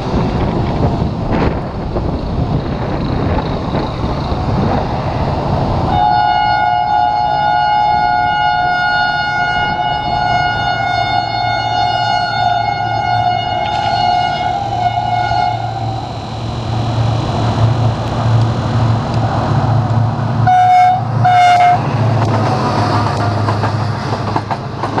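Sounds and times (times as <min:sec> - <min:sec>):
locomotive rushing rumble: 0:00.0 - 0:25.0
two-tone air horn blast: 0:05.9 - 0:15.9, 0:20.4 - 0:21.8.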